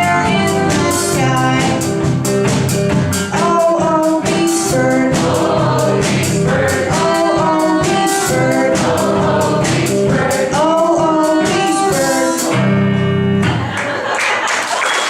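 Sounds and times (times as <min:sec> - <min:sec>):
person singing: 0:00.0 - 0:01.9, 0:03.3 - 0:13.0
drum beat: 0:00.0 - 0:12.7
electric guitar: 0:11.4 - 0:13.8.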